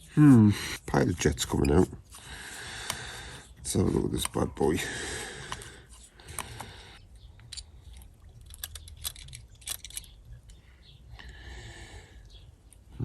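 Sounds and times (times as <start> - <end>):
small metal parts clicking: 7.4 - 10.4.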